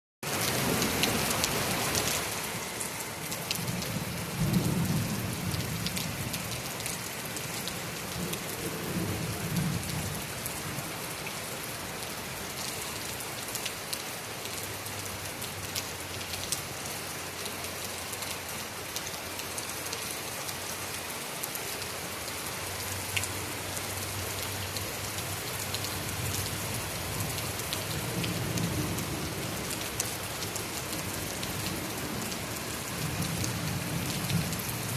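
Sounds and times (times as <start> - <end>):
heavy rain falling: 0.2 - 34.9
low rolls of thunder: 3.6 - 6.4.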